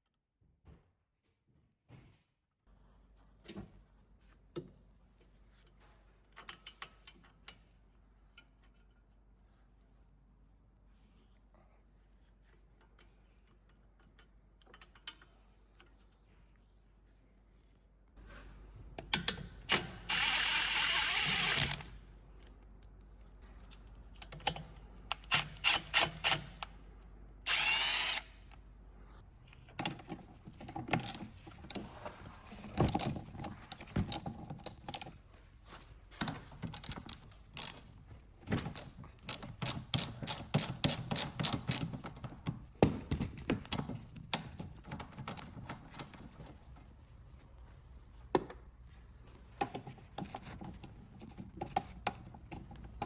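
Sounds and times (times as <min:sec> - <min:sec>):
power tool running: 0:20.1 - 0:21.9, 0:27.5 - 0:28.4
hand tools clicking and clattering: 0:29.8 - 0:35.3, 0:36.2 - 0:46.6
ratchet clicking: 0:30.8 - 0:31.8, 0:32.9 - 0:35.1, 0:36.7 - 0:42.2.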